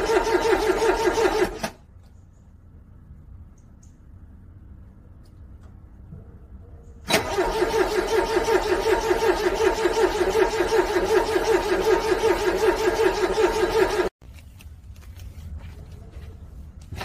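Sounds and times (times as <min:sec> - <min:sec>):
car engine cranking on starter: 0:00.0 - 0:01.8, 0:07.0 - 0:14.1.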